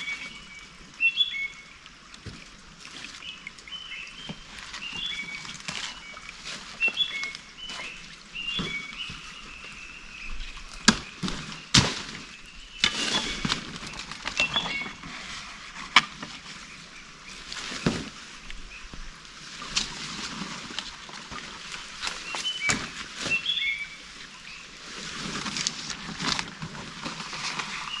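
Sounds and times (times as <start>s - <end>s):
bird singing whistled notes: 0.0s - 1.7s, 6.8s - 10.6s, 14.4s - 15.0s, 22.2s - 24.6s.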